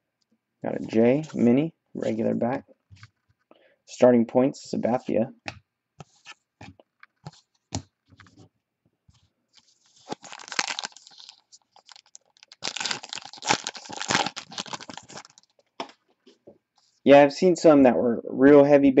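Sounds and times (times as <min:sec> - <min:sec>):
packaging crinkling and tearing: 0:09.6 - 0:15.6.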